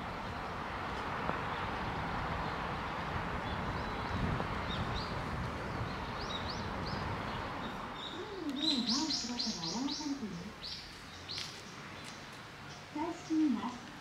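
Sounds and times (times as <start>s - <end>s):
background noise: 0.0s - 14.0s
songbird chirping: 3.4s - 14.0s.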